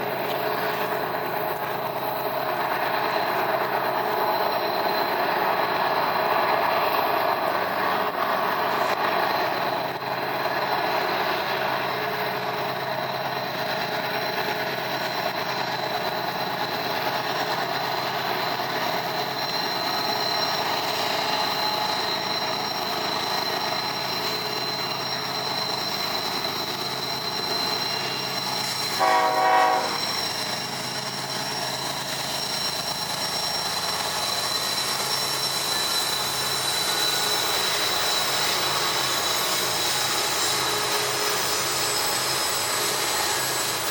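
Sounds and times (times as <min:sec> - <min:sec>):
high-pitched whine: 0:00.0 - 0:43.9
train rail noise: 0:00.0 - 0:43.9
locomotive horn blast: 0:29.0 - 0:30.1.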